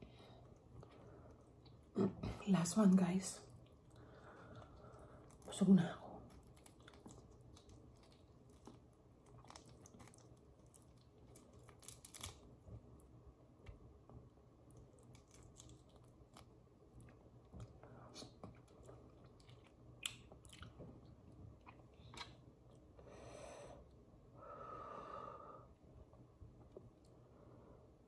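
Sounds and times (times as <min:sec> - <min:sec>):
chewing and mouth sounds: 0:06.2 - 0:12.4, 0:14.7 - 0:22.8
shells crackling being peeled: 0:09.4 - 0:12.5.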